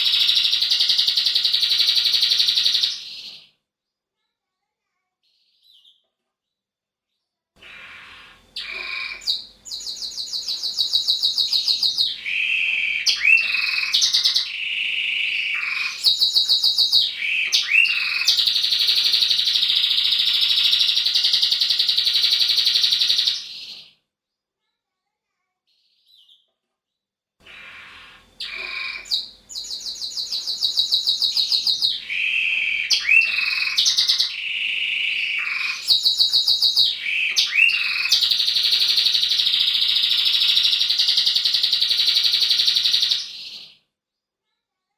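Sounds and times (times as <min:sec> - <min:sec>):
canary singing trills: 0:00.0 - 0:03.4, 0:07.6 - 0:23.9, 0:27.5 - 0:43.7.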